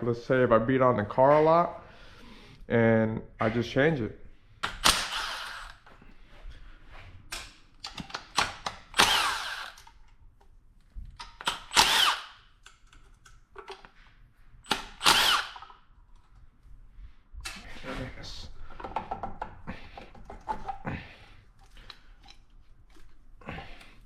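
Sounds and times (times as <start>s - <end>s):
power drill spinning: 4.7s - 6.0s, 8.4s - 10.0s, 11.3s - 12.5s, 14.6s - 15.8s
clicks of parts handled: 12.6s - 14.0s.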